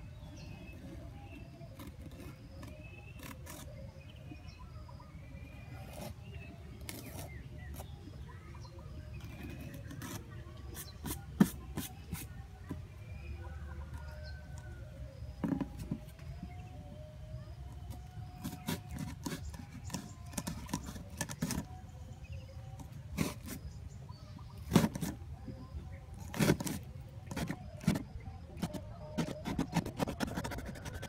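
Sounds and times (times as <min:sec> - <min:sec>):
clicks taps and scrapes of handling: 0:17.9 - 0:21.8.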